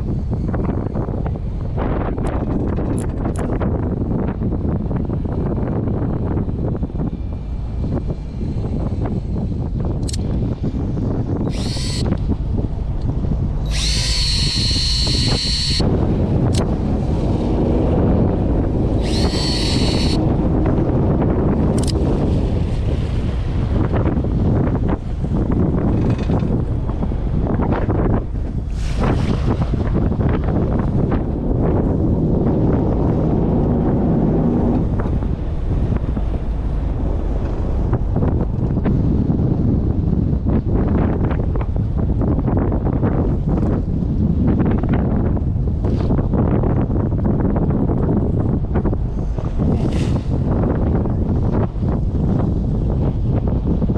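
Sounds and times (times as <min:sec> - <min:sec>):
low rumble of wind and boat: 0:00.0 - 0:53.9
fishing reel motor whining: 0:11.4 - 0:12.4, 0:13.6 - 0:15.9, 0:19.0 - 0:20.4.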